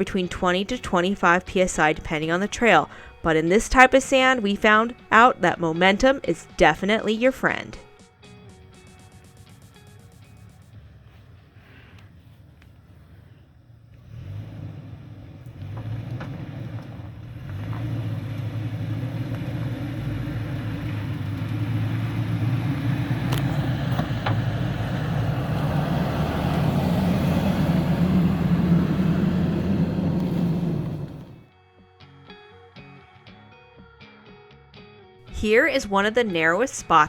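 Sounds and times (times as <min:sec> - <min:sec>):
truck engine pulling under load: 0:12.9 - 0:31.5.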